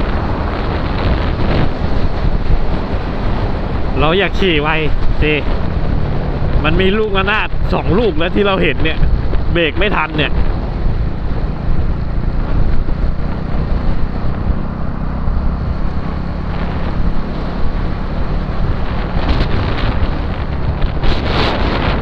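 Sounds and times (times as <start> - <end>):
wind buffeting microphone: 0.0 - 22.0
motorcycle engine running: 4.7 - 22.0.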